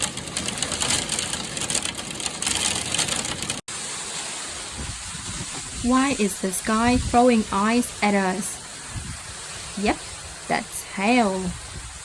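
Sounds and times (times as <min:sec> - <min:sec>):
hailstones pelting a hard surface: 0:00.0 - 0:06.2.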